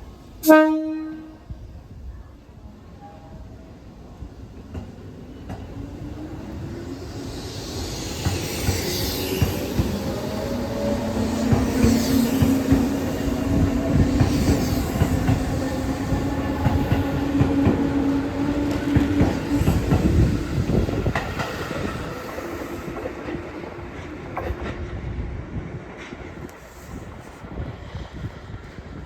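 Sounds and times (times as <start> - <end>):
train wheels clacking: 4.7 - 25.0.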